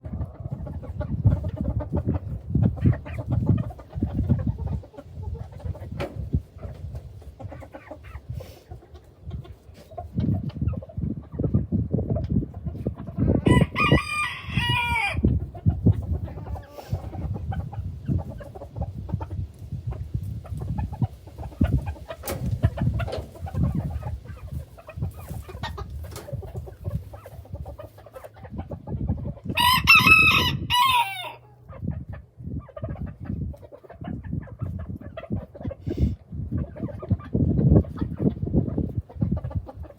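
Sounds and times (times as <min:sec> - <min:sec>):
chickens clucking: 0:00.0 - 0:39.9
rooster crowing: 0:13.5 - 0:15.2, 0:29.6 - 0:31.4.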